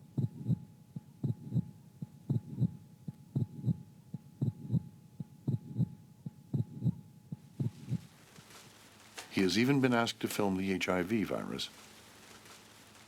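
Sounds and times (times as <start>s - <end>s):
heartbeat thumps: 0.0s - 8.2s
faint steady hum: 0.0s - 13.0s.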